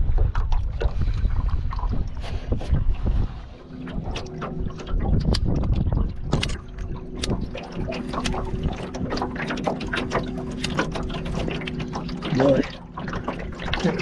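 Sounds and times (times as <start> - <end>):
wind buffeting the microphone: 0.0 - 9.2
small boat motor humming: 0.0 - 14.0
water slapping against kayak hull: 0.0 - 14.0.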